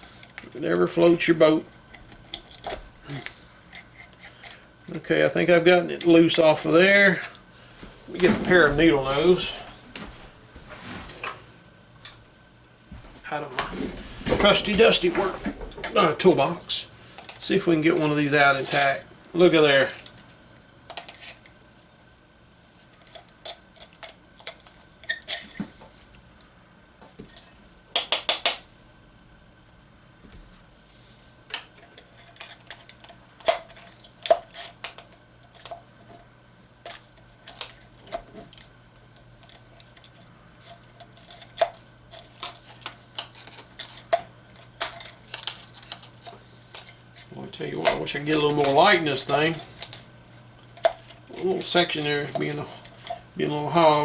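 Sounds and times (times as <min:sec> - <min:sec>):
pliers clicking and scraping foil: 0:00.0 - 0:07.4, 0:17.2 - 0:22.1, 0:22.7 - 0:26.1, 0:31.5 - 0:54.0
faint steady hum: 0:00.0 - 0:54.0.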